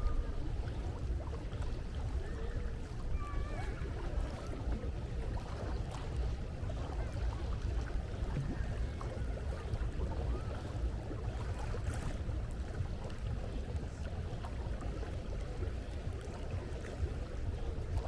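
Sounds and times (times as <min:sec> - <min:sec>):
faint sea wash: 0:00.0 - 0:18.0
wind buffeting microphone: 0:00.0 - 0:18.0.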